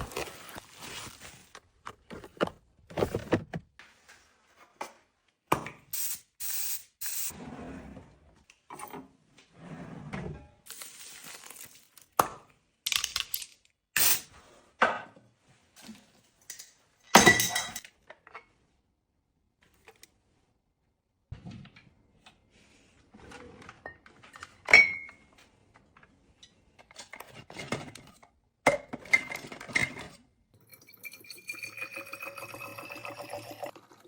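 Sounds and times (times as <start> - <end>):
objects handled and set down: 0.0 - 5.0, 10.7 - 14.2.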